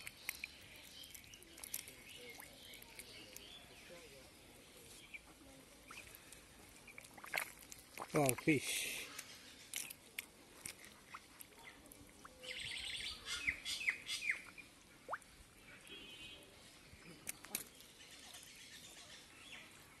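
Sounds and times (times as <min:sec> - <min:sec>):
hands splashing in muddy water: 0:00.0 - 0:03.7, 0:05.9 - 0:12.5
birds chirping: 0:00.0 - 0:07.5, 0:08.1 - 0:20.0.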